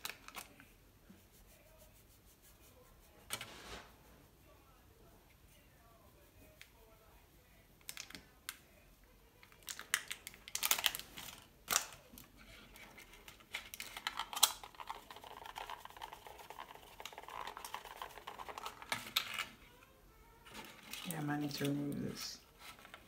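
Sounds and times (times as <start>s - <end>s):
paper packet crinkling: 0.0s - 0.6s, 9.5s - 12.0s, 13.0s - 19.5s.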